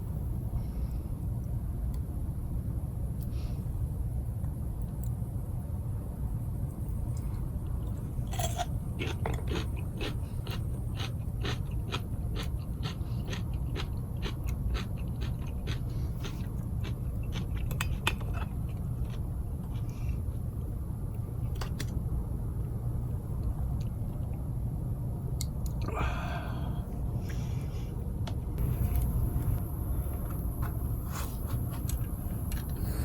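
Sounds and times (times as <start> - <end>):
person chewing crunchy food: 7.9 - 20.5.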